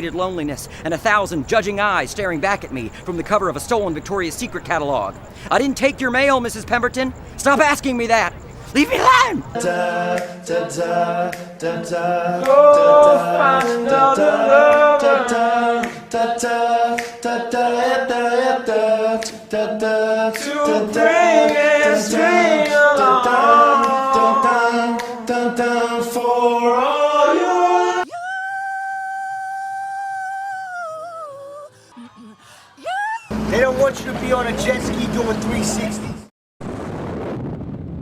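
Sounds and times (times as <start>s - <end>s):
voices singing in harmony: 8.6s - 33.4s.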